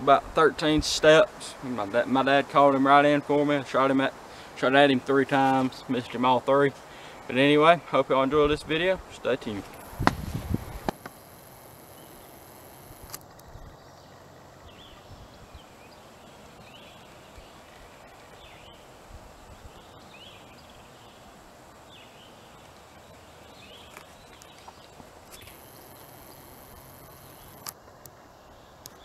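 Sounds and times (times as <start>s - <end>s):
faint steady hiss: 0.0s - 29.0s
small birds chirping: 9.4s - 18.9s, 21.9s - 27.6s.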